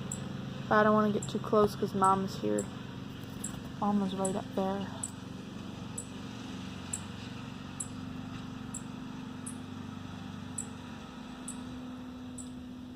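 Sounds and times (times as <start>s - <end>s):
lawn mower engine running: 0.0s - 12.9s
bird chirping: 8.7s - 9.6s, 10.5s - 10.8s, 11.4s - 11.7s, 12.3s - 12.6s.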